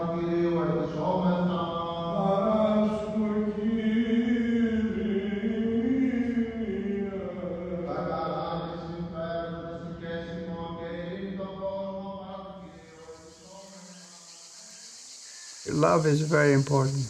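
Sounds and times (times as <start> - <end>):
male voices chanting: 15.3 - 17.0.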